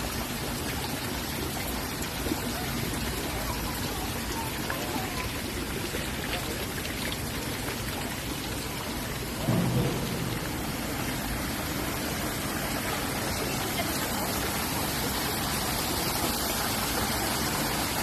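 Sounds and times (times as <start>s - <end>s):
waterfall rushing: 0.0s - 18.0s
low rumble: 9.2s - 13.0s.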